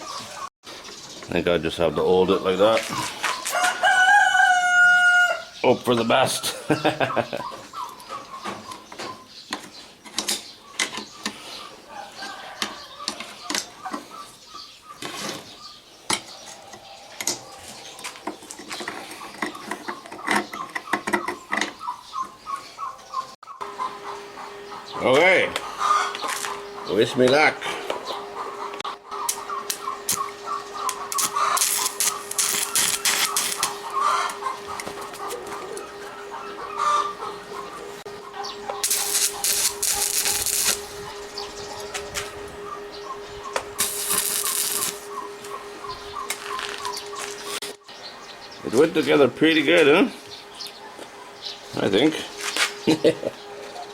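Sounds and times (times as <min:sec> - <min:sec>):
chickens clucking: 0:00.0 - 0:53.9
welding arc crackling: 0:29.2 - 0:35.5, 0:38.7 - 0:42.3, 0:43.7 - 0:45.2.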